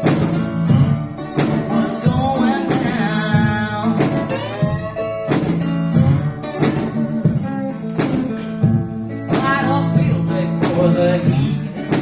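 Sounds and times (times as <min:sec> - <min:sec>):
percussion hits: 0:00.0 - 0:12.0
strummed guitar: 0:00.0 - 0:12.0
person singing: 0:01.4 - 0:05.3, 0:09.3 - 0:12.0.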